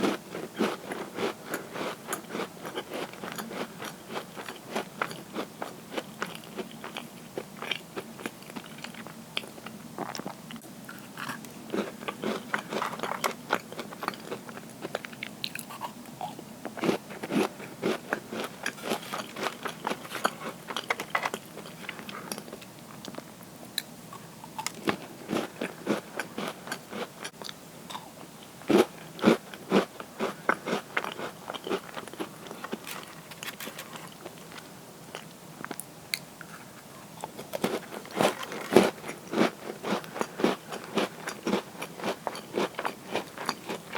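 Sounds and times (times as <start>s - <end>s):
cookies crunching when chewed: 0.0s - 43.9s.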